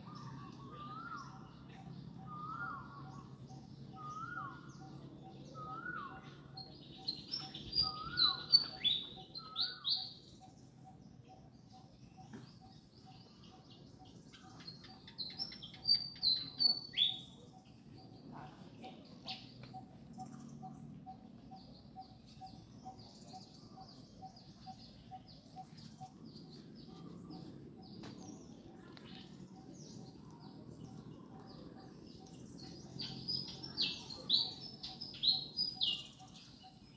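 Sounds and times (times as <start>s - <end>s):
small birds chirping: 0.0s - 36.9s.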